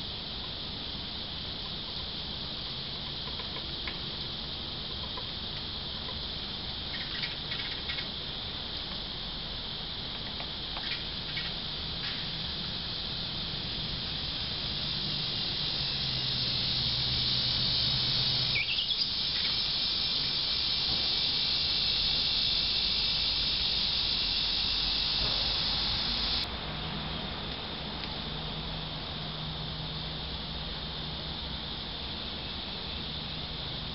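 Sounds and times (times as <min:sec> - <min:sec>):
insects droning: 0:00.0 - 0:33.9
bird chirps: 0:06.9 - 0:08.1, 0:18.5 - 0:20.4.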